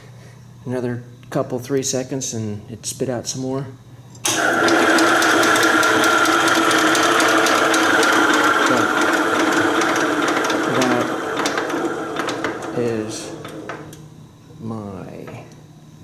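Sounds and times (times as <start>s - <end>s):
tractor engine cranking with clicking: 4.3s - 14.0s.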